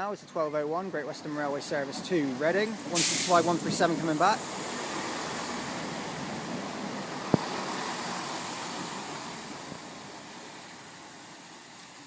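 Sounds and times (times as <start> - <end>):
train pulling into platform: 2.8 - 10.5.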